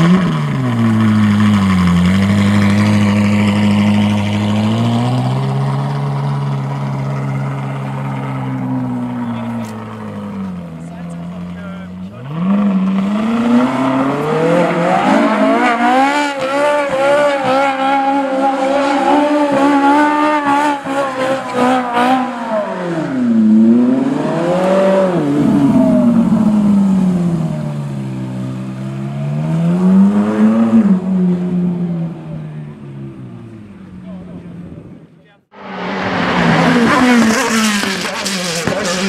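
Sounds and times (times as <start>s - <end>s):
car engine revving high: 0.0s - 33.7s, 35.5s - 39.0s.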